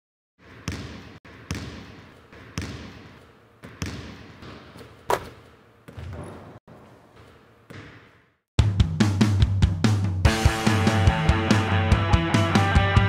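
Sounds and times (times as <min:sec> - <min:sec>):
reverberant ball bounce thuds: 0:00.4 - 0:08.4.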